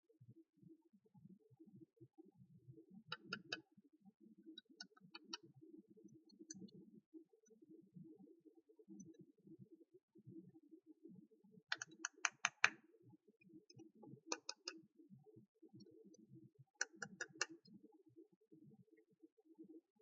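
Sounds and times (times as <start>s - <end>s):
plastic toy pieces clicking: 11.7s - 12.7s.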